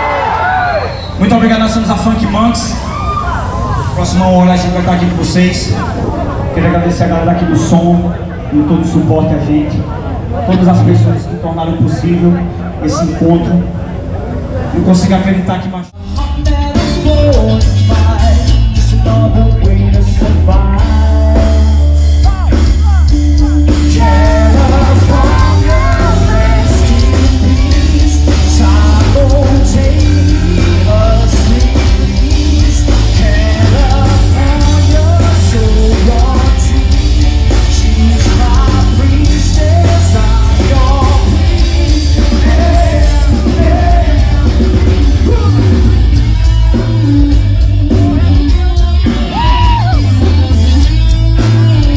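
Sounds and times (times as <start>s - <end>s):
heavy bass line: 0.0s - 51.9s
live rock band playing: 16.0s - 51.9s
person singing: 16.0s - 51.9s.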